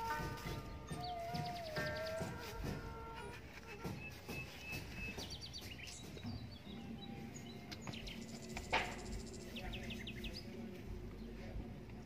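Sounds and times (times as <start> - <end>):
dry leaves rustling: 0.0 - 6.0
small birds chirping: 0.0 - 12.0.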